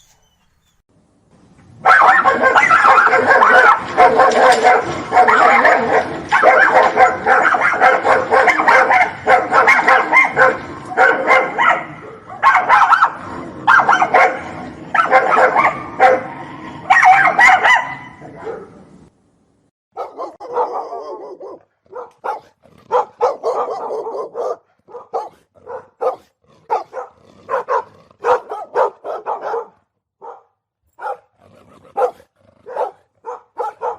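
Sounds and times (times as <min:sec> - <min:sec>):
dogs barking and fighting: 0:01.7 - 0:18.9, 0:19.9 - 0:33.9
quieter spaced dog barks: 0:01.9 - 0:18.8, 0:20.0 - 0:33.9.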